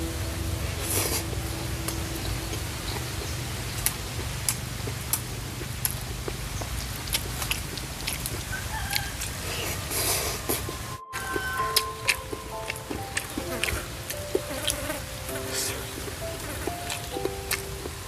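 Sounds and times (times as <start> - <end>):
low steady rumble: 0.0 - 8.5
person chewing with clicks: 3.7 - 14.9, 16.0 - 18.0.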